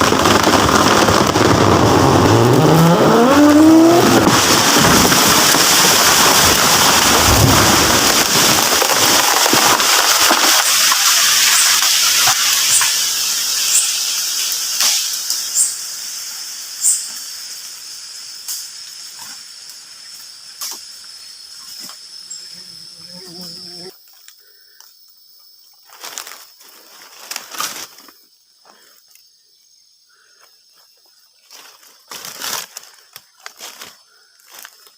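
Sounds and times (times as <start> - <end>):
branches cracking and snapping: 0.0 - 12.9, 25.9 - 28.2, 31.5 - 34.9
tree crashing down: 0.0 - 12.9.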